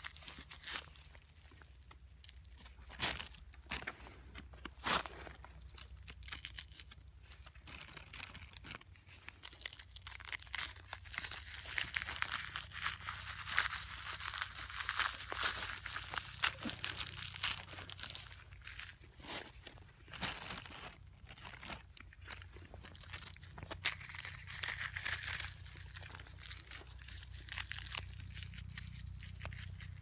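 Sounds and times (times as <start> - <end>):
dry leaves rustling and crackling: 9.4 - 30.0.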